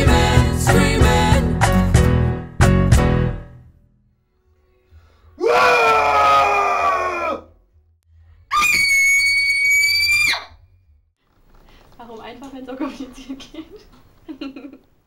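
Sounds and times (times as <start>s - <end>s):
person screaming: 5.4s - 7.5s.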